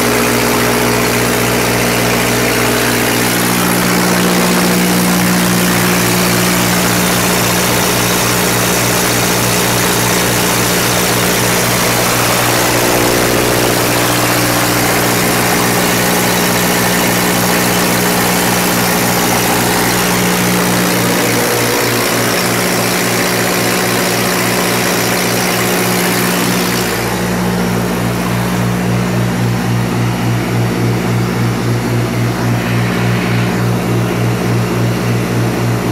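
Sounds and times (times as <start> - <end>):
generator engine running: 0.0 - 35.9.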